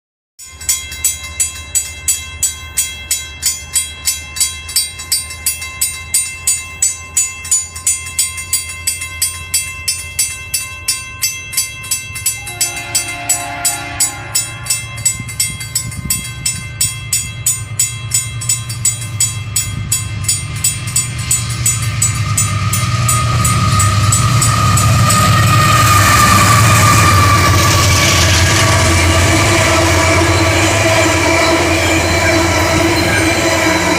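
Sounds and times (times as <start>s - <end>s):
short tone: 12.4s - 15.0s
train wheels clicking over rail joints: 14.7s - 33.9s.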